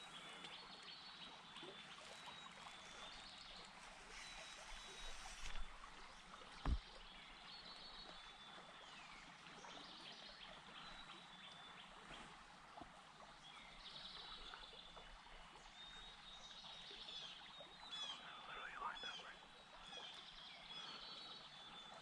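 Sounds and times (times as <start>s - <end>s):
songbirds singing and chirping: 0.0s - 22.0s
brief low thump: 6.6s - 7.0s.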